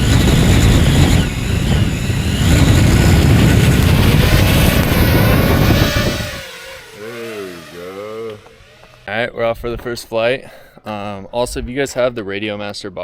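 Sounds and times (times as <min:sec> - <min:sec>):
drone motors whining: 0:00.0 - 0:09.3
heavy low rumble: 0:01.4 - 0:09.0.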